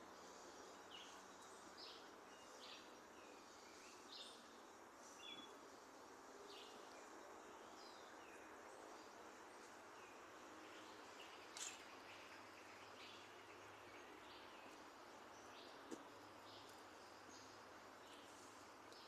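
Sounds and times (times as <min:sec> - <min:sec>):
background hiss: 0:00.0 - 0:19.0
faint bird chirps: 0:00.2 - 0:05.8.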